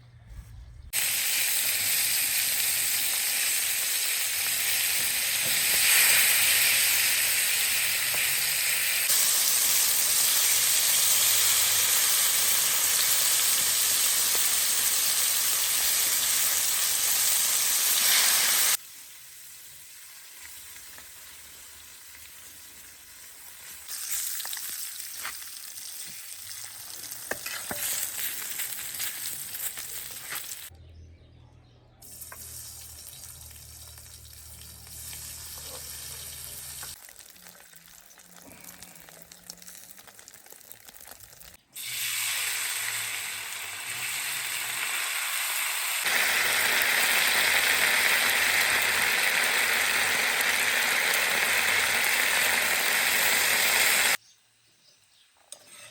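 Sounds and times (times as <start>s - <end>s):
hiss of rushing water: 1.0s - 16.5s.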